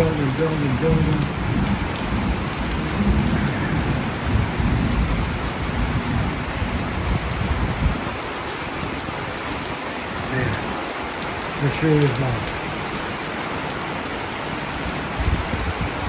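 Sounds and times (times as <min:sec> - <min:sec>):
thunder rumbling: 0:00.0 - 0:08.2
heavy rain pouring: 0:00.0 - 0:16.0.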